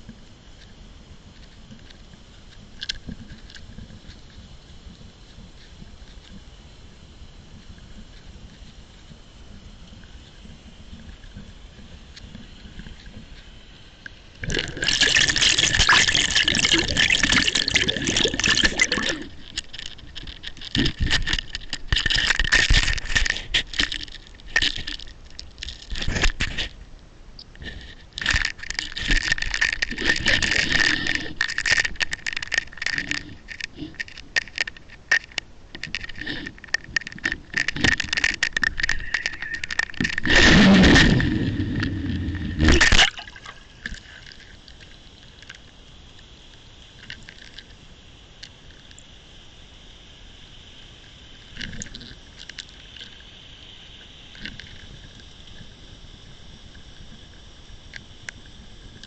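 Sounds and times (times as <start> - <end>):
water rushing over camera: 0.0 - 26.8, 27.4 - 45.6
faint high whine: 0.0 - 59.0
rattling and scraping clicks: 14.5 - 26.7, 27.6 - 41.9.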